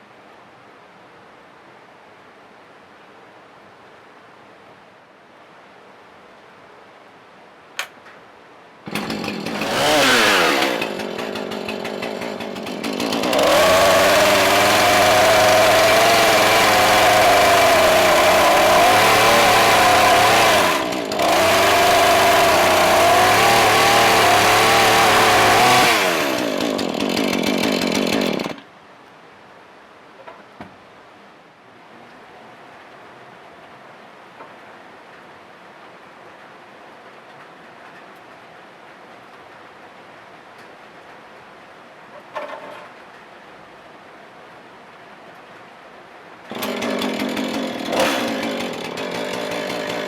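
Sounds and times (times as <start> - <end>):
power tool motor whirring: 8.9 - 28.6.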